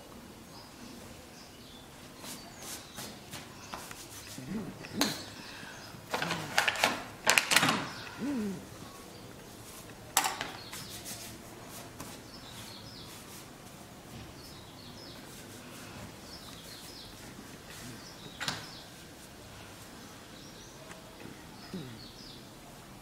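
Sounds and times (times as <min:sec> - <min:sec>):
steady background hiss: 0:00.0 - 0:23.0
small birds chirping: 0:00.4 - 0:22.6.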